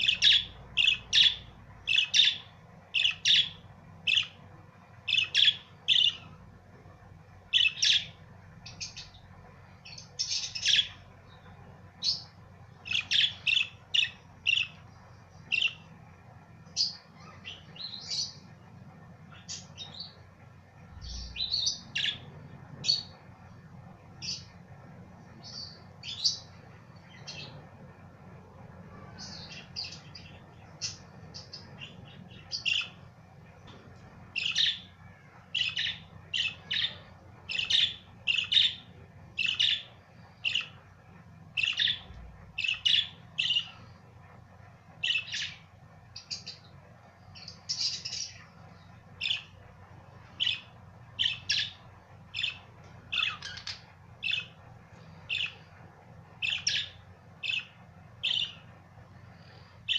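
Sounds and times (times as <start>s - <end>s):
budgerigars chirping: 0.0s - 4.4s, 5.1s - 6.3s, 7.5s - 9.2s, 9.9s - 11.0s, 12.0s - 14.8s, 35.6s - 38.8s, 39.4s - 40.8s, 41.6s - 43.8s, 45.0s - 45.6s, 50.4s - 54.6s, 55.3s - 55.6s, 56.4s - 58.6s.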